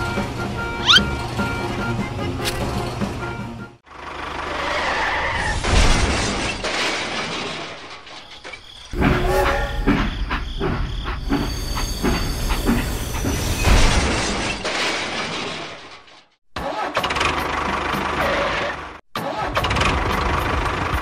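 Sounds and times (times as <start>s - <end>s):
engine running: 0.0s - 4.9s.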